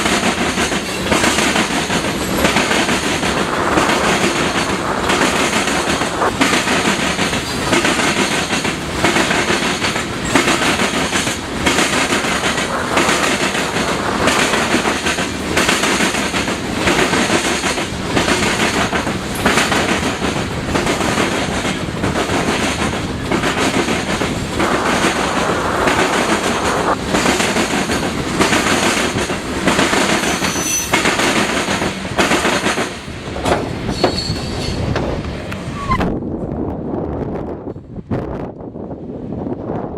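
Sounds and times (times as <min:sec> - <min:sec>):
train wheels clacking over rail joints: 0:00.0 - 0:35.7
high wheel squeals: 0:30.3 - 0:31.0, 0:33.9 - 0:34.8.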